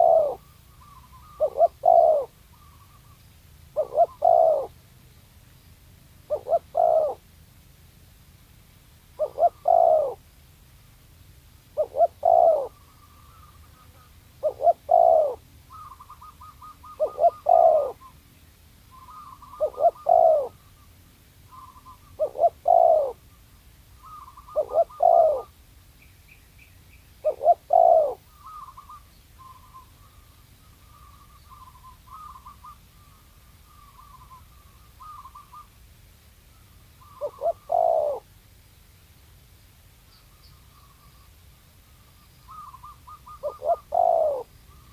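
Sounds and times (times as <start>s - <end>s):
dove cooing: 0.0s - 3.0s, 3.8s - 4.8s, 6.3s - 7.2s, 9.2s - 10.2s, 11.8s - 18.1s, 18.9s - 20.7s, 21.5s - 23.2s, 24.0s - 25.5s, 27.2s - 30.2s, 30.8s - 35.7s, 37.0s - 38.3s, 42.5s - 44.9s
high bird twittering: 0.0s - 3.2s, 24.0s - 35.7s.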